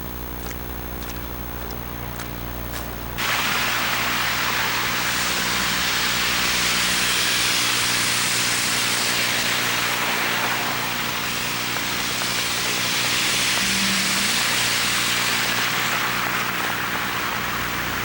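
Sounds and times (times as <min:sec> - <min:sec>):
low electrical buzz: 0:00.0 - 0:18.0
steady loud rushing noise: 0:03.2 - 0:18.0.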